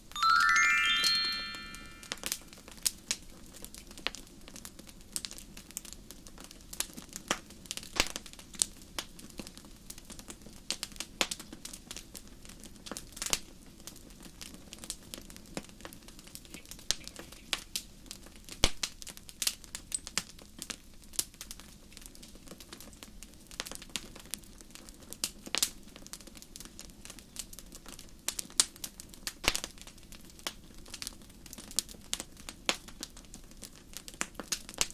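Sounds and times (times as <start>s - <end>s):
ringing chime: 0.2s - 2.4s.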